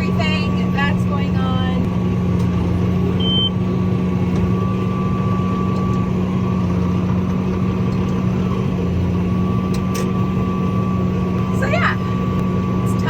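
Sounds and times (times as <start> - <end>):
tractor engine running: 0.0 - 13.0
short high beep: 3.2 - 3.6.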